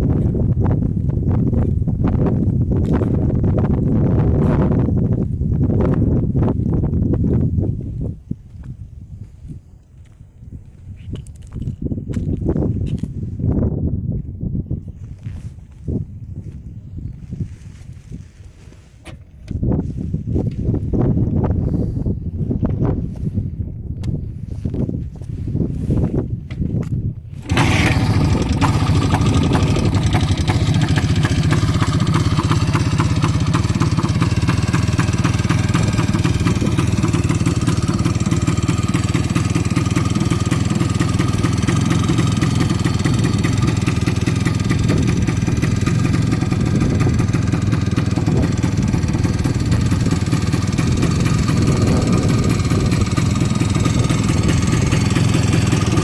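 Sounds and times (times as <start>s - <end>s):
motorcycle engine idling: 27.4s - 56.0s.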